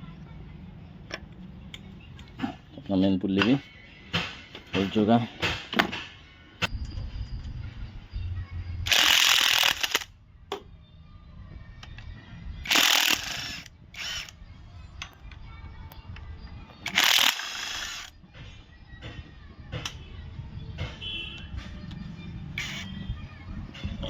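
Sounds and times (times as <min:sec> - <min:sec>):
wrench undoing bolts: 0:22.6 - 0:22.9.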